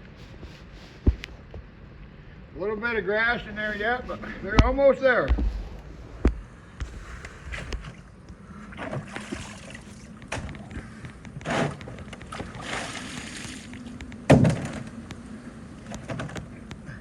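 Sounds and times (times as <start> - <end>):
loud thump: 4.2 - 7.7, 14.3 - 14.9.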